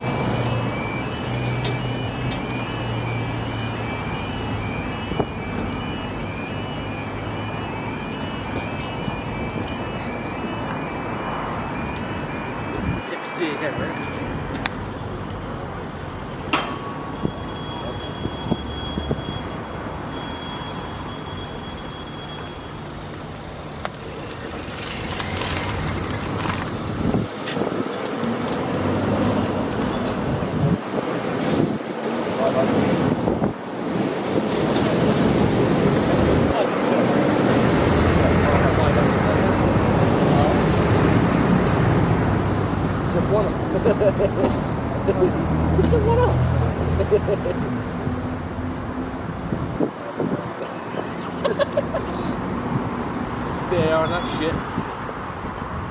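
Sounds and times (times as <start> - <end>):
high-pitched crossing tones: 0.0 - 14.7, 16.6 - 23.4
level crossing alarm: 0.0 - 30.8, 33.2 - 46.3.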